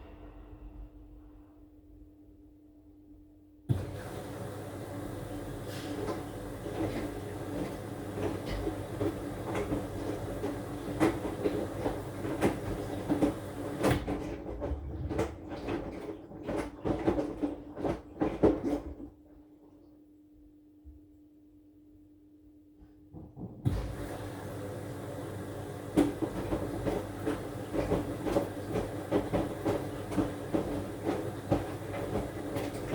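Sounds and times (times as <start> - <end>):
washing machine motor hum: 3.7 - 21.1, 23.1 - 32.9
clothes knocking in drum: 25.9 - 32.9.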